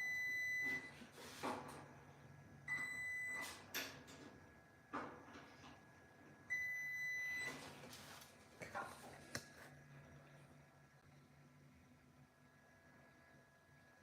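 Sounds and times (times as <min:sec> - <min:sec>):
multimeter continuity beep: 0:00.0 - 0:01.0, 0:02.7 - 0:03.5, 0:06.5 - 0:07.6.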